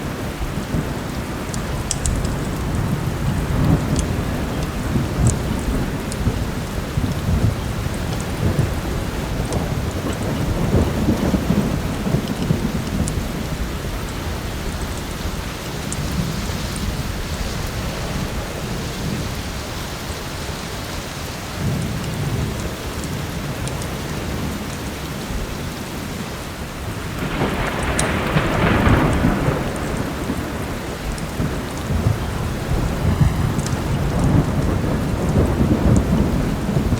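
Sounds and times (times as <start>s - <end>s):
wood fire crackling: 0.0s - 18.4s
rolling thunder: 0.0s - 20.6s, 21.5s - 36.9s
heavy rain falling: 0.0s - 36.9s.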